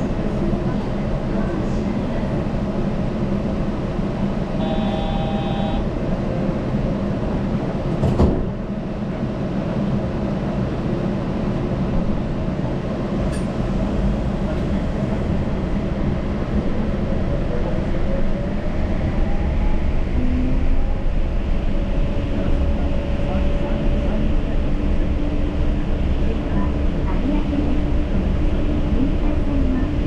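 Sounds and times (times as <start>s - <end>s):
train running with low rumble: 0.0s - 30.0s
high electronic tone: 4.6s - 5.8s.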